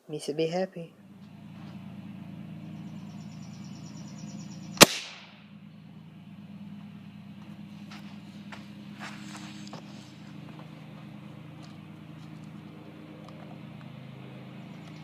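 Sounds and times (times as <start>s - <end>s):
steady low hum: 0.0s - 15.0s
blank gunshot crack: 4.8s - 5.3s.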